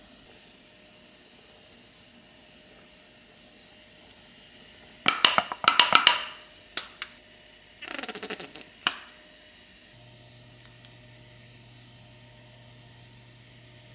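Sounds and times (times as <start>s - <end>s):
hard objects clinking and rattling: 5.1s - 6.4s, 7.8s - 9.1s.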